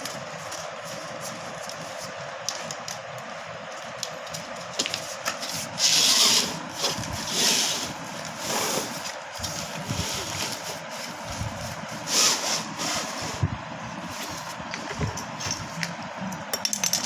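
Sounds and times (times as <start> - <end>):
material rasping and rubbing: 5.0 - 15.0.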